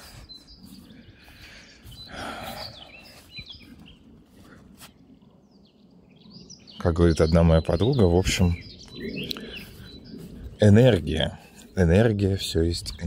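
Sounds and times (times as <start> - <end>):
soft breathy sound: 0.0 - 5.1
small birds chirping: 0.0 - 13.0.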